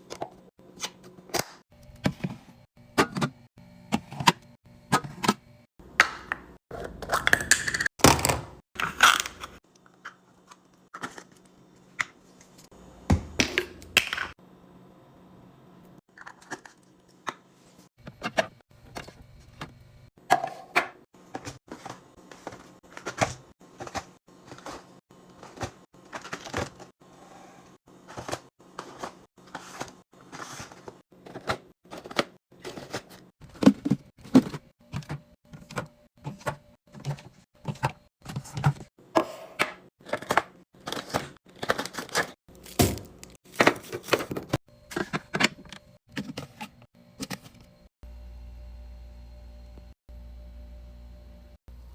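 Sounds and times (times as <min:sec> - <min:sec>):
food packages being handled: 0:21.2 - 0:26.9, 0:40.0 - 0:46.6.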